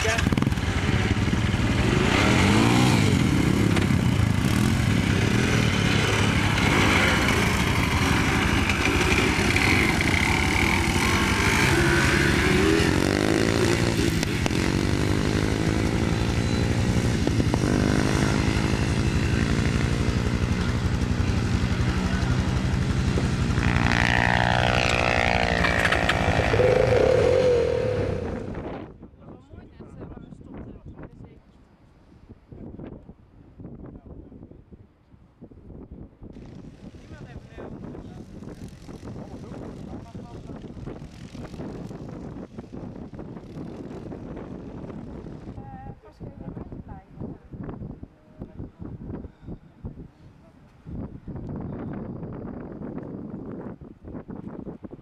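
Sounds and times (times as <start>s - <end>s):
quad bike engine revving: 0.0s - 28.7s.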